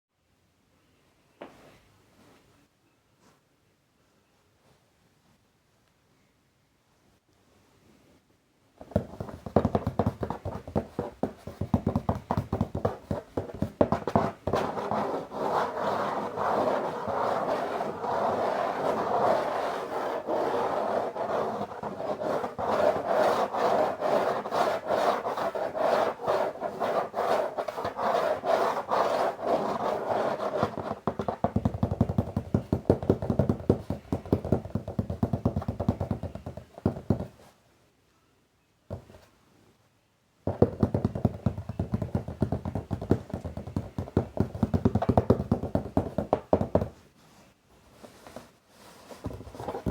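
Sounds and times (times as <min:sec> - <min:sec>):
tapping on a box: 0:08.8 - 0:14.7, 0:31.0 - 0:37.4, 0:40.5 - 0:47.0
scratching on a box: 0:08.8 - 0:37.5, 0:40.5 - 0:47.0, 0:48.0 - 0:49.9.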